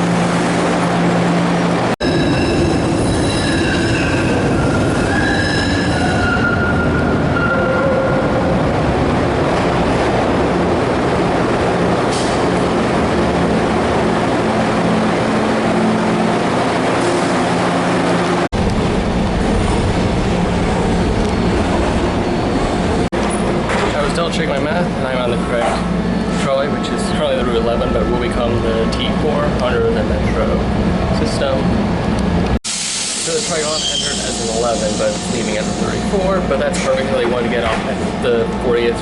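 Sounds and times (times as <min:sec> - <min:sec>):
rumble of moving trolley car: 0:00.0 - 0:32.6, 0:33.2 - 0:39.0
trolley wheels squealing on rails: 0:02.0 - 0:08.4, 0:33.2 - 0:36.2.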